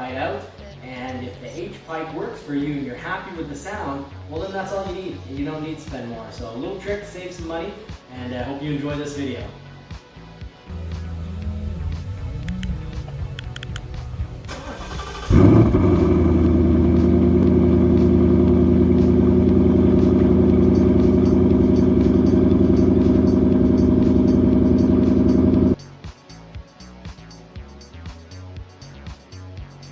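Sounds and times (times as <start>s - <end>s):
engine idling with deep exhaust: 10.7s - 25.8s
starter cranking: 12.4s - 18.2s.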